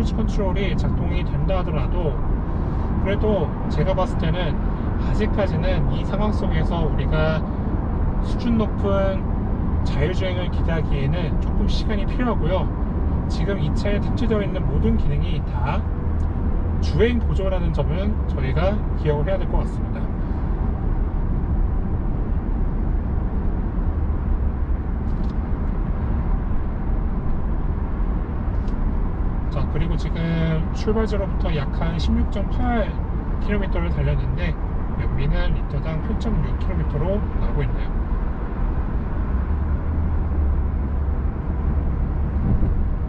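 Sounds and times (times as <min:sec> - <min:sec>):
muted engine hum: 0:00.0 - 0:43.0
road and tyre noise: 0:00.0 - 0:43.0.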